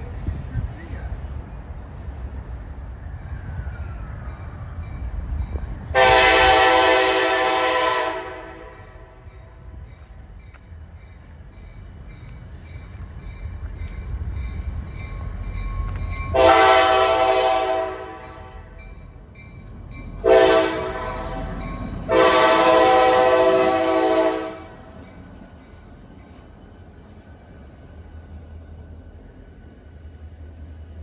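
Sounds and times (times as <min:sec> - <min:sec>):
train rumbling: 0:00.0 - 0:31.0
diesel locomotive horn blasts: 0:05.9 - 0:09.3, 0:16.3 - 0:18.8, 0:20.2 - 0:25.0.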